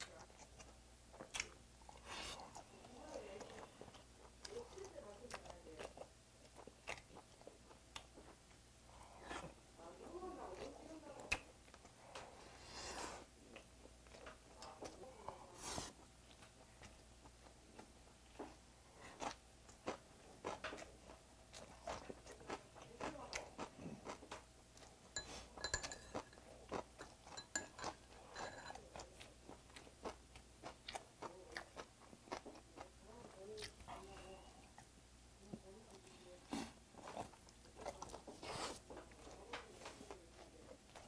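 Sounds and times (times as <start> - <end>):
close-miked chewing: 0.0 - 12.5, 13.2 - 41.0.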